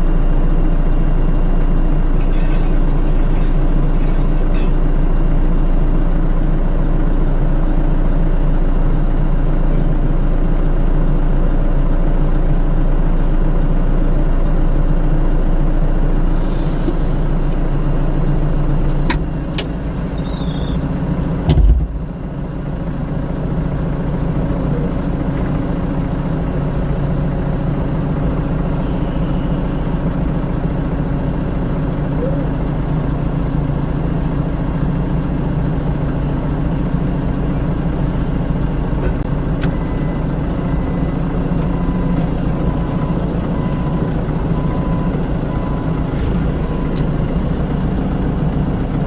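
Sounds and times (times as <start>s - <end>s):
heavy vehicle engine idling: 0.0s - 49.0s
heavy thump: 21.4s - 22.1s.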